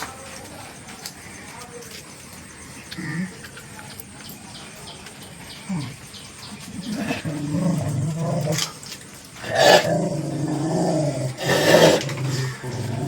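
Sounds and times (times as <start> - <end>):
dog growling: 5.6 - 13.0.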